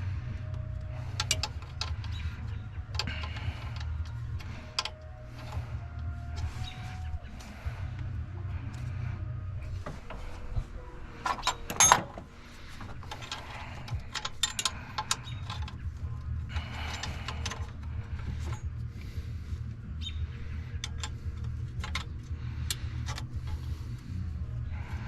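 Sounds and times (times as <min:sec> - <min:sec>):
steady low hum: 0:00.0 - 0:25.0
hand tools clicking on metal: 0:00.5 - 0:02.2, 0:02.9 - 0:05.6, 0:11.2 - 0:18.8, 0:20.7 - 0:23.7.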